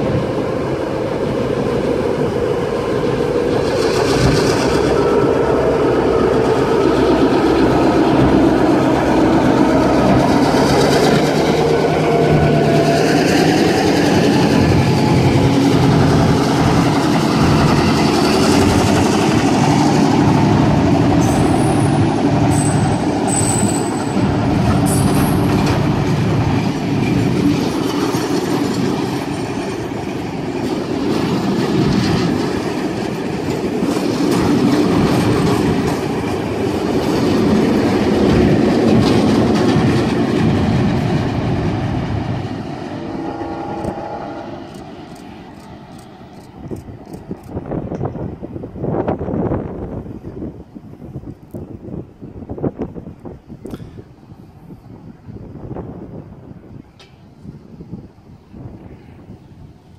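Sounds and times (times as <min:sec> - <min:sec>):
wheels clattering over rail joints: 0:00.0 - 0:50.1
diesel locomotive engine running: 0:00.0 - 0:59.9
high-pitched wheel squeals: 0:21.2 - 0:25.6.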